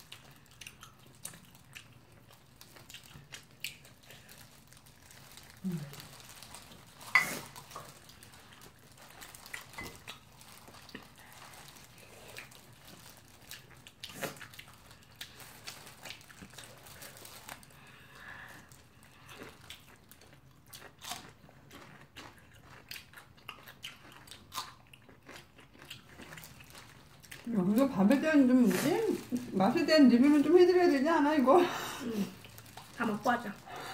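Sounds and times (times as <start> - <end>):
wet chewing: 0.0 - 29.6, 32.0 - 33.9
fried chicken crunches: 18.8 - 27.5.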